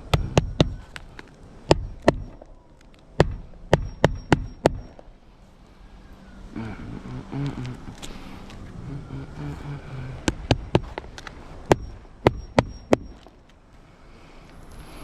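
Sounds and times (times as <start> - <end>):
sharp knocks and clicks of tools: 0.0 - 5.0, 10.2 - 13.3.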